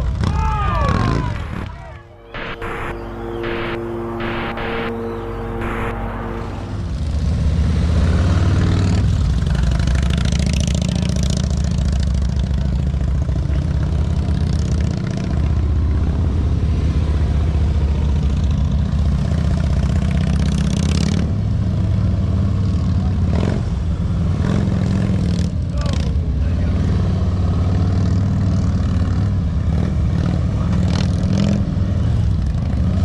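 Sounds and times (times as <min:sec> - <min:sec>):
motorcycle engine throbbing: 0:00.9 - 0:16.2.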